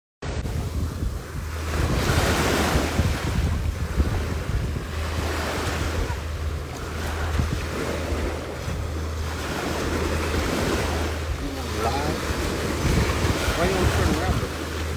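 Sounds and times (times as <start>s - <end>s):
wind buffeting microphone: 0.2s - 14.9s.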